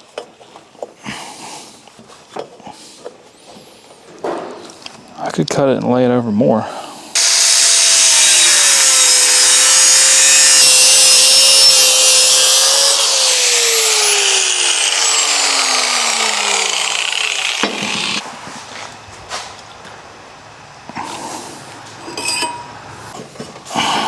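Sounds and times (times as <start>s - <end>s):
electric cut-off tool cutting metal: 7.2s - 18.2s
motor winding down: 7.2s - 18.2s.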